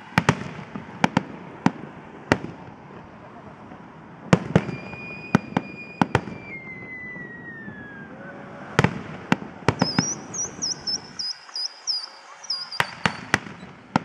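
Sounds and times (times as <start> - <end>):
fireworks bangs: 0.0 - 14.0
whistle sliding down in pitch: 4.6 - 8.2, 9.8 - 13.7
high wavering whistle: 4.6 - 8.4, 9.8 - 13.8.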